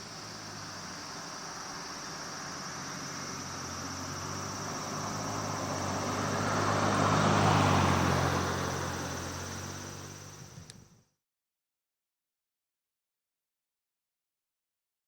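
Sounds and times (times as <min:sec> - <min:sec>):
vehicle engine passing by: 0:00.0 - 0:10.6.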